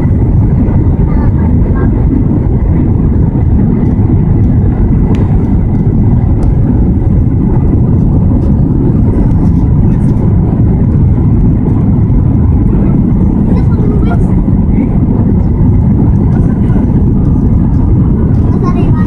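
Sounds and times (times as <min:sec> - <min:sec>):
aircraft cabin engine and airflow rush: 0:00.0 - 0:19.0.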